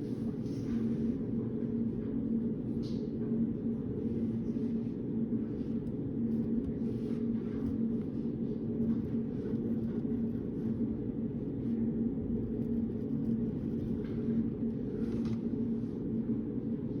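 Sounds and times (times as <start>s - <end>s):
low background hum: 0.0s - 17.0s
light scratches and taps at desk: 12.5s - 15.5s.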